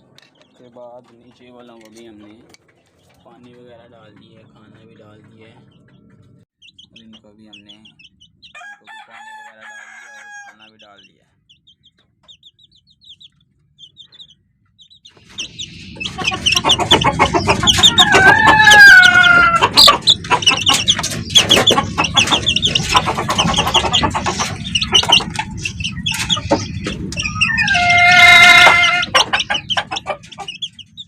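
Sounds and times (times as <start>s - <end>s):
chickens clucking and calling: 0.0s - 31.0s
chicks peeping: 0.0s - 31.0s
steady rumble: 11.1s - 31.0s.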